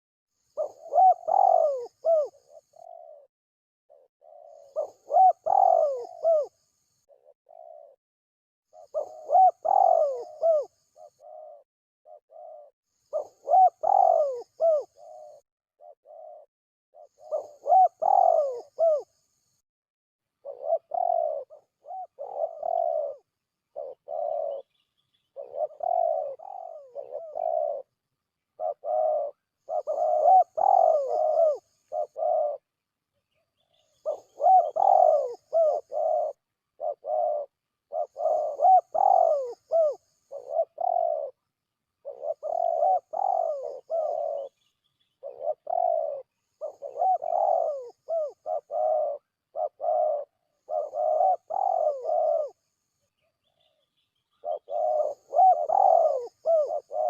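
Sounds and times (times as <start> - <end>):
doves cooing: 0.4 - 3.3, 3.9 - 8.0, 8.7 - 19.3, 20.4 - 32.7, 33.6 - 52.8, 53.4 - 57.0.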